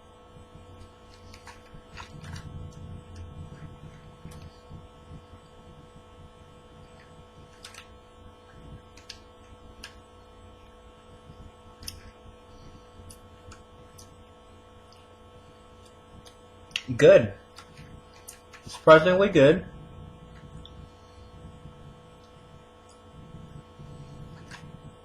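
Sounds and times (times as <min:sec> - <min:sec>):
electrical hum: 0:00.0 - 0:25.0
person chewing dried fruit: 0:14.8 - 0:16.9
low rumble: 0:19.6 - 0:25.0.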